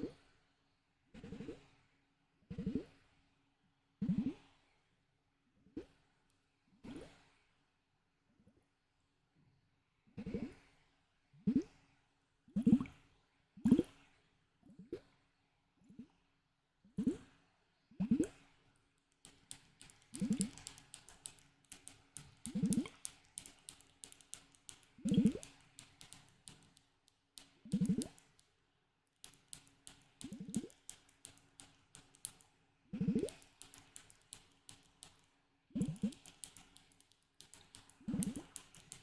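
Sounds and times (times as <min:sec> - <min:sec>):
quick crackling clicks: 0:19.3 - 0:28.5, 0:29.3 - 0:32.5, 0:33.2 - 0:39.0.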